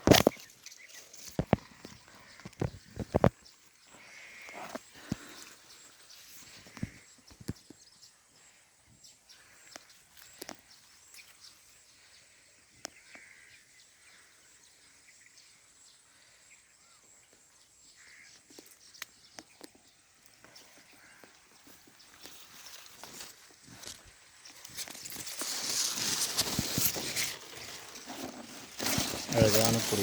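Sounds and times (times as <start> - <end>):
sharp crackles and clicks: 0.0 - 3.4, 23.8 - 30.0
rustling of dry leaves: 0.0 - 8.6, 18.0 - 30.0.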